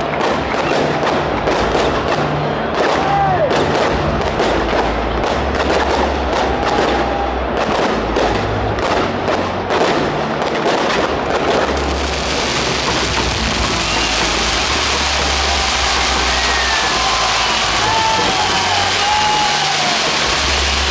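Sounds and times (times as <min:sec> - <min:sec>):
fireworks bangs and crackles: 0:00.0 - 0:20.9
firework whistle: 0:10.6 - 0:20.9.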